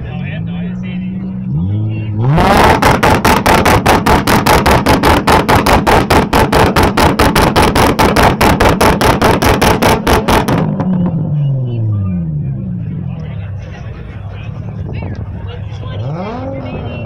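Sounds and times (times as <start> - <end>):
car engine hitting rev limiter: 1.5 - 11.6.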